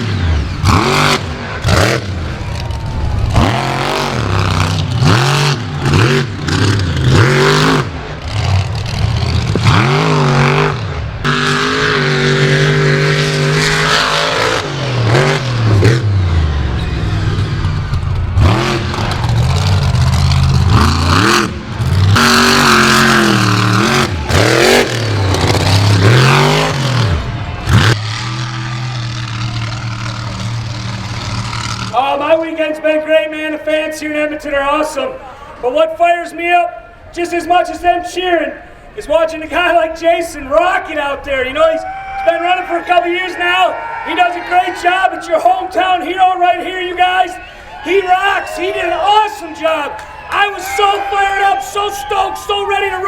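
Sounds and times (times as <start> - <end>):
truck engine revving hard: 0.0 - 32.2.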